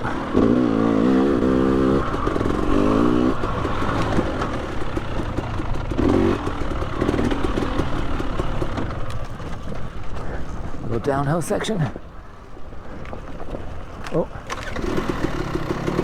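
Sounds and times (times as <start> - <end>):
dirt bike engine revving: 0.0 - 10.0, 14.4 - 16.0.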